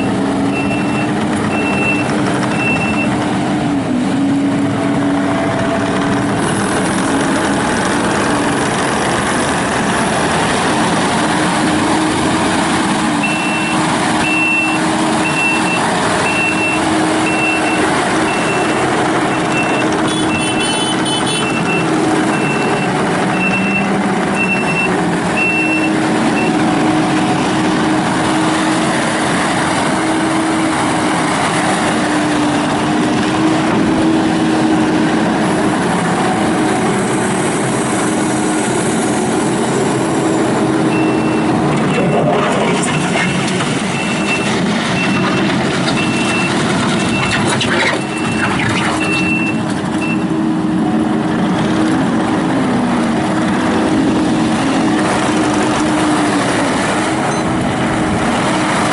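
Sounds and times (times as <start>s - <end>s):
reverse alarm beeping: 0.0s - 3.2s, 13.2s - 20.6s, 40.9s - 42.3s, 43.0s - 47.4s, 48.0s - 50.3s
diesel engine running: 0.0s - 58.9s.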